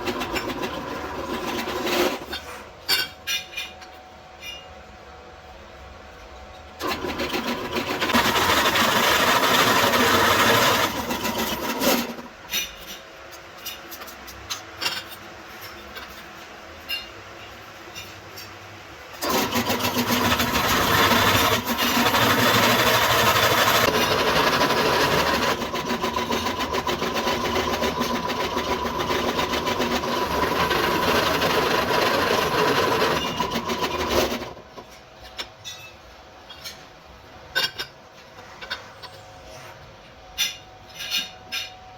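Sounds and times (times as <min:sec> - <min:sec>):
power tool grinding metal: 0:19.2 - 0:34.6.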